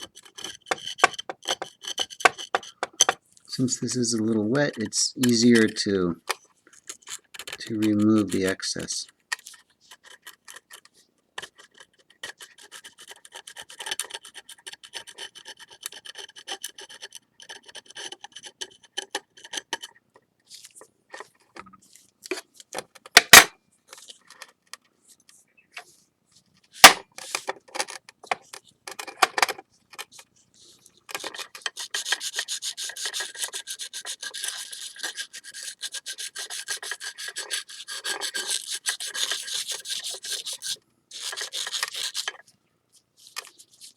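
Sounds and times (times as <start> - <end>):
sandpaper rubbing on ceramic: 30.7 - 42.4.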